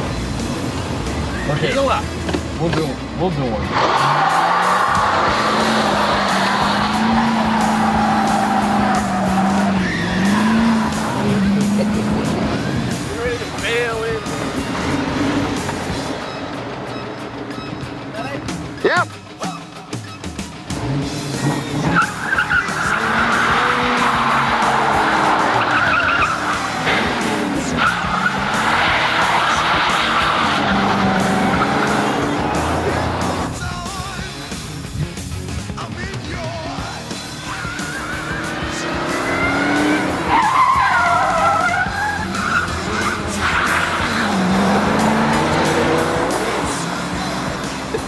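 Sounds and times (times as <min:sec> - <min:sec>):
car engine revving hard: 0:03.6 - 0:17.4, 0:20.6 - 0:33.6, 0:37.2 - 0:48.0
tyres squealing: 0:03.7 - 0:20.5, 0:21.4 - 0:33.6, 0:37.2 - 0:48.0.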